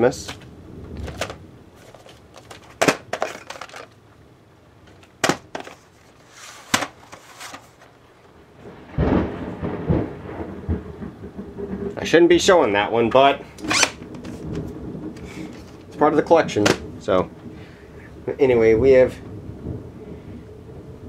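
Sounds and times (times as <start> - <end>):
thunder rumble: 0.0 - 3.4, 8.4 - 21.0
plastic tape cases clicking: 0.2 - 4.0, 4.9 - 5.9, 6.6 - 7.9.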